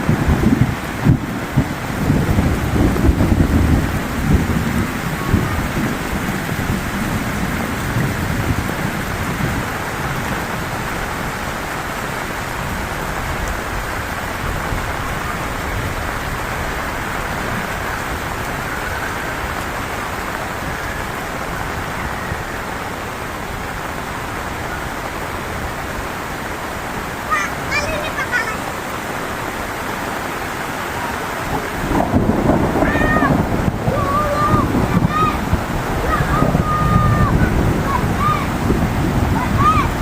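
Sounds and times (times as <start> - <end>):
low thunder rumble: 0.0 - 22.7, 31.0 - 40.0
heavy rain falling: 0.0 - 40.0.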